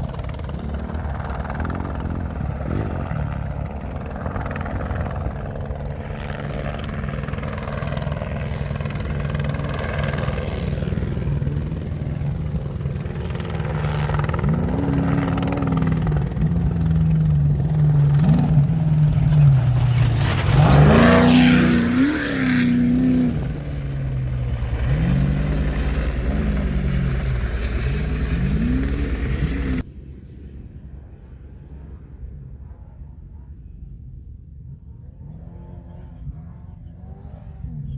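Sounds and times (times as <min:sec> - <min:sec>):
truck engine revving past: 0:00.0 - 0:29.9.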